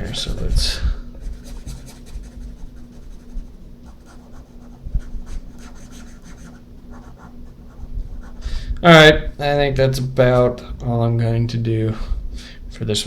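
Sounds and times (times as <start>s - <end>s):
pen scratching on paper: 1.2s - 8.4s.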